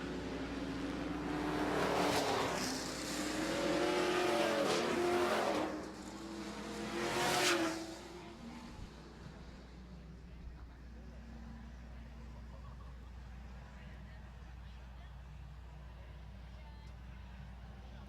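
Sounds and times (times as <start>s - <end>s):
race trucks passing by: 0.0s - 10.7s.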